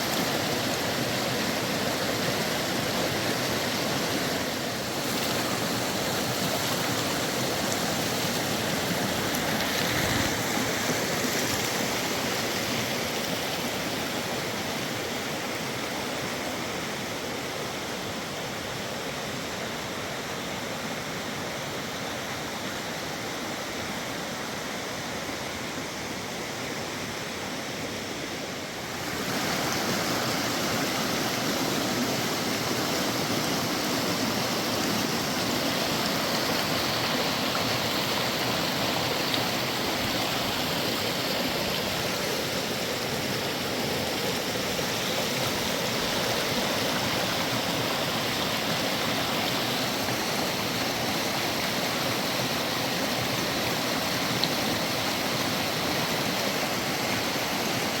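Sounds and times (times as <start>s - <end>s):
river rushing: 0.0s - 58.0s.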